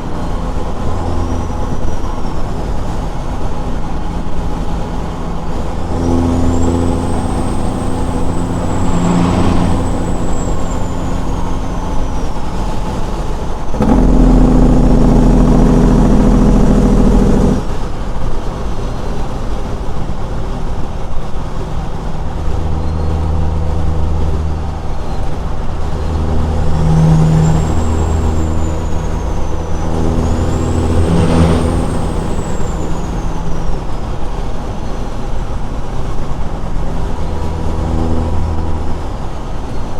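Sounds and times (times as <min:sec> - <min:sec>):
diesel truck engine running: 0:00.0 - 0:18.7, 0:19.5 - 0:39.9
high whistle: 0:05.4 - 0:12.9, 0:22.6 - 0:33.9.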